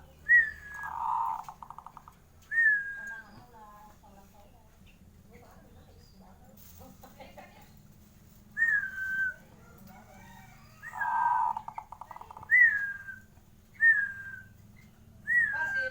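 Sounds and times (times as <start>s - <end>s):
dove calling: 0.0s - 3.8s, 8.5s - 15.9s.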